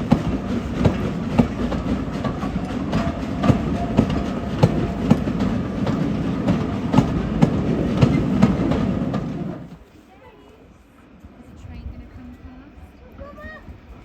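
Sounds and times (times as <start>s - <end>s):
wheel clicks at rail joints: 0.0s - 9.8s
train rumbling: 0.0s - 10.0s.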